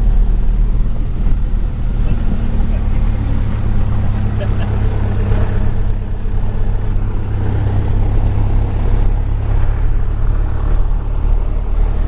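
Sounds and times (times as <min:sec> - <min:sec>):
aircraft engines droning: 0:00.0 - 0:12.0.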